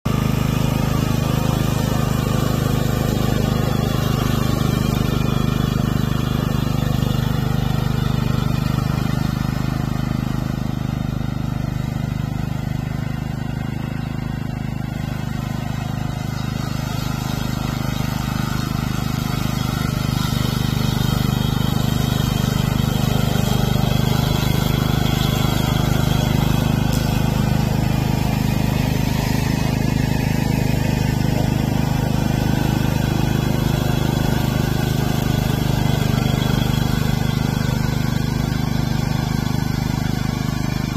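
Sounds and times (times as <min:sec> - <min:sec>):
lawn mower engine running: 0:00.0 - 0:40.9.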